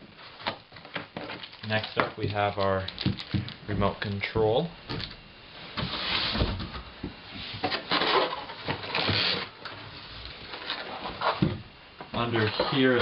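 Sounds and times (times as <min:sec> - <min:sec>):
packaging rustling and scraping: 0:00.1 - 0:03.6, 0:05.7 - 0:11.5, 0:12.2 - 0:13.0.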